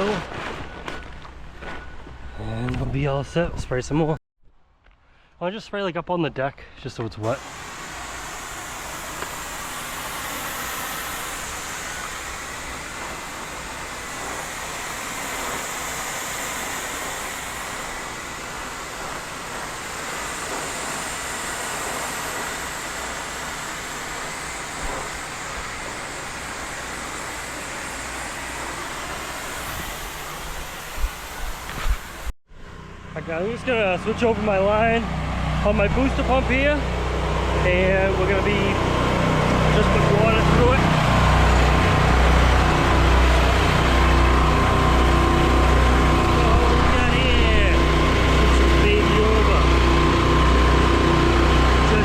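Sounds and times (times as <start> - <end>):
water spraying from a hose: 7.2 - 32.3, 37.6 - 52.0
motor running: 7.2 - 52.0.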